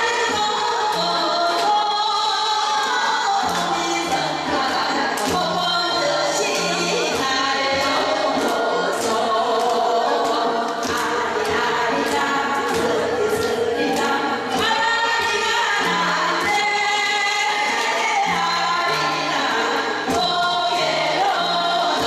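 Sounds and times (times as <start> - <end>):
musical accompaniment: 0.0 - 22.0
person singing: 0.0 - 22.0
steady percussion beat: 3.5 - 22.0.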